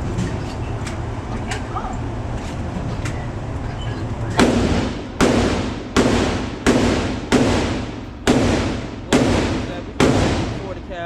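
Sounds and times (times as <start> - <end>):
gunshots with echo: 4.4 - 10.8.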